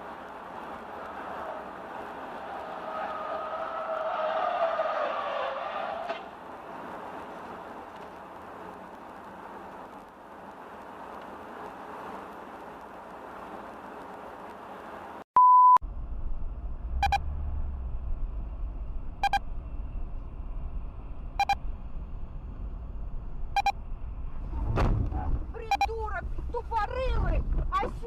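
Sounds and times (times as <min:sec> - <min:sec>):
road and cabin noise: 0:00.0 - 0:28.0
censor bleep tone: 0:15.4 - 0:15.8, 0:17.0 - 0:17.3, 0:19.2 - 0:19.5, 0:21.4 - 0:21.6, 0:23.6 - 0:23.8, 0:25.7 - 0:25.9
low rumble: 0:15.8 - 0:27.8.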